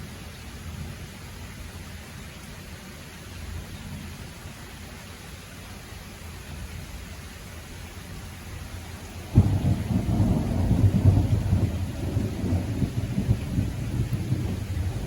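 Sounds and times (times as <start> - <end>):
rain hiss: 0.0 - 15.0
thunder clap and rumble: 9.3 - 15.0.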